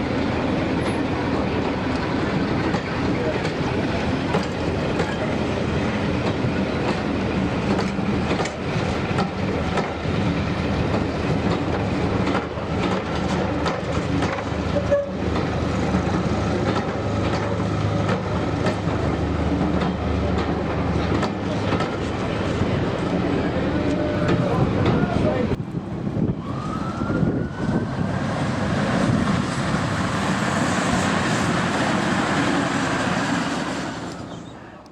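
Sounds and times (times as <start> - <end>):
diesel train engine hum: 0.0 - 34.9
wheels clicking over rail joints: 0.7 - 27.1.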